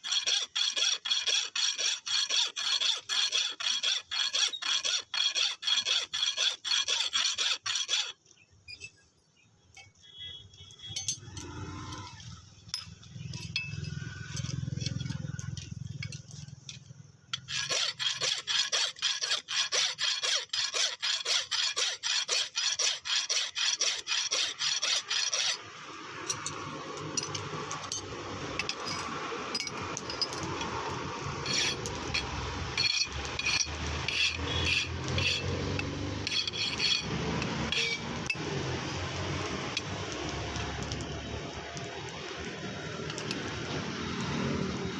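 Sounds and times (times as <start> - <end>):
file rasping on metal: 0.0 - 8.2, 17.4 - 25.7, 31.4 - 38.2.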